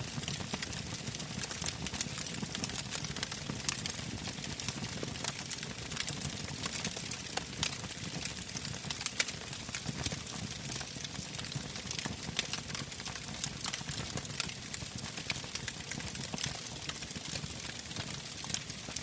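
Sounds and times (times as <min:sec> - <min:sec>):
fire crackling and popping: 0:00.1 - 0:19.0.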